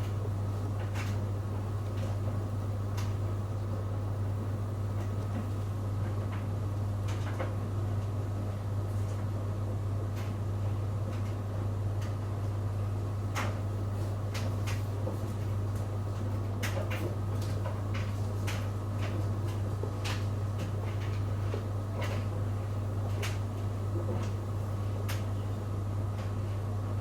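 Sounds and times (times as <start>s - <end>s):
washing machine humming: 0.0s - 27.0s.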